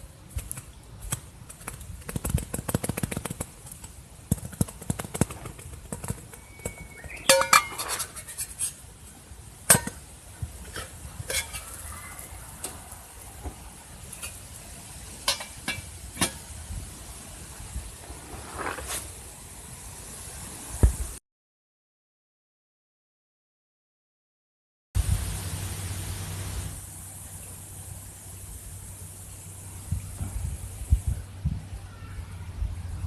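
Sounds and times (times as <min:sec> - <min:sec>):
metal clinking on pots and pans: 0:07.2 - 0:08.7, 0:10.7 - 0:11.9, 0:15.2 - 0:16.4.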